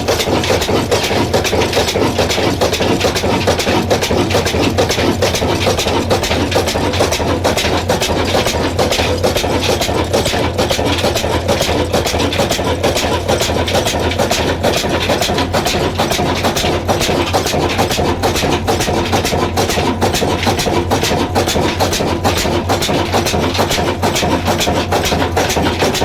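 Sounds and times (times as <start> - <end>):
diesel engine clattering: 0.0 - 26.0.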